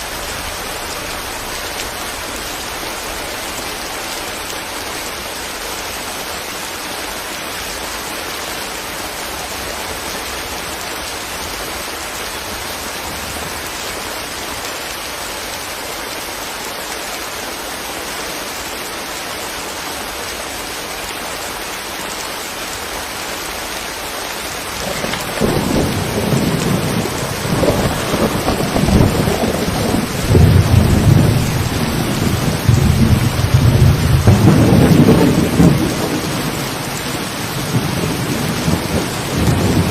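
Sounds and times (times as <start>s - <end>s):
rain falling: 0.0s - 39.9s
rolling thunder rumble: 24.7s - 39.9s.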